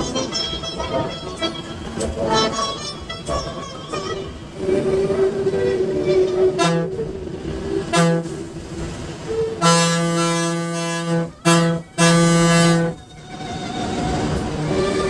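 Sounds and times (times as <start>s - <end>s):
bus horn toots and blasts: 5.6s - 7.1s, 7.9s - 8.5s, 9.6s - 13.0s.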